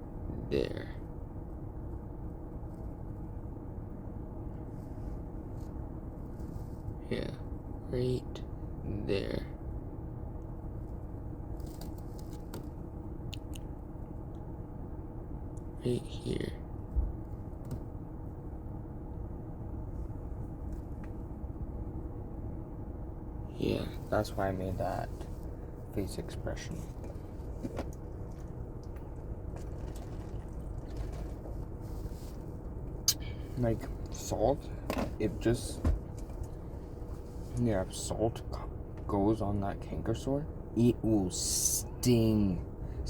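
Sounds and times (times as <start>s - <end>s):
low background rumble: 0.0s - 43.0s
faint soft noises: 0.3s - 9.6s, 23.4s - 43.0s.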